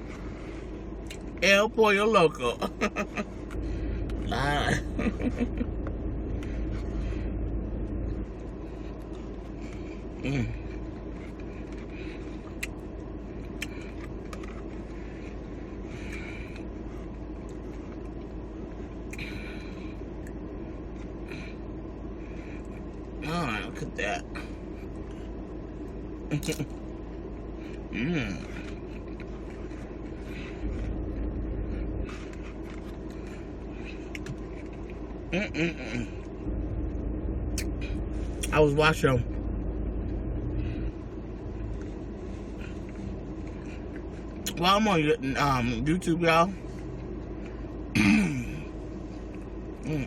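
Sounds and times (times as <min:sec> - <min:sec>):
low rumble and hiss: 0:00.0 - 0:50.0
chewing and mouth noises: 0:08.0 - 0:23.2, 0:24.3 - 0:35.3, 0:41.5 - 0:44.6
hummed vocal sound: 0:10.2 - 0:10.7, 0:27.9 - 0:28.6, 0:35.3 - 0:36.3.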